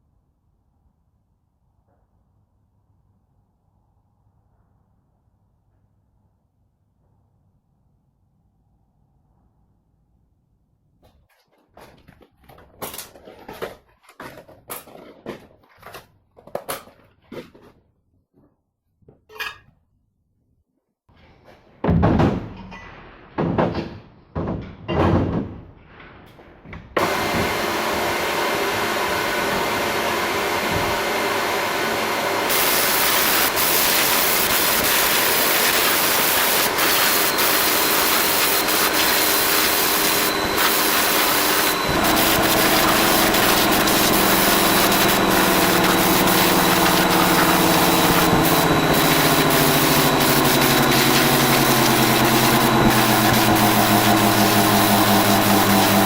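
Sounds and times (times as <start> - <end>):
knocks: 21.8 - 25.8
motor hum: 27.0 - 56.0
workshop machine hissing rush: 27.0 - 56.0.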